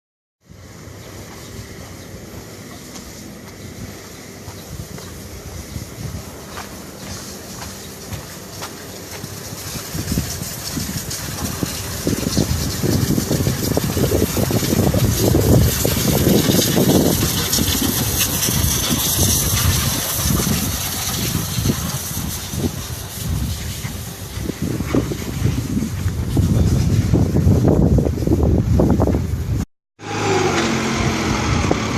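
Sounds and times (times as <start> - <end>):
truck diesel engine running: 0.5 - 27.6, 30.0 - 31.9
steady hiss: 0.5 - 29.6.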